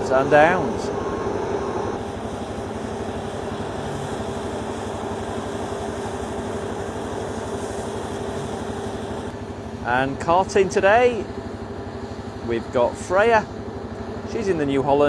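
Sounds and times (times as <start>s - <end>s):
combine harvester droning: 0.0s - 15.0s.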